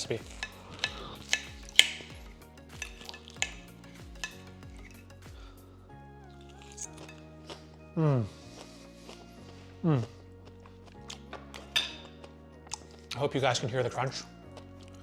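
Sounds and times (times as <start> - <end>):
crunchy chewing: 0.0 - 5.6, 6.3 - 13.2
soft background music: 0.0 - 15.0.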